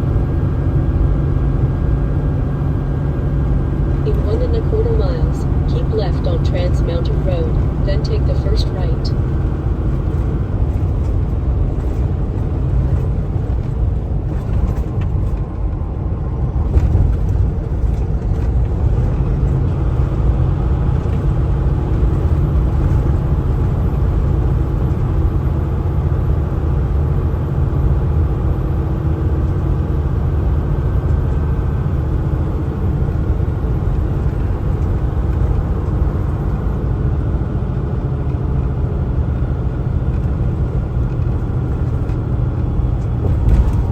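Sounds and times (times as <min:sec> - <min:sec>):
truck engine and road noise: 0:00.0 - 0:43.9.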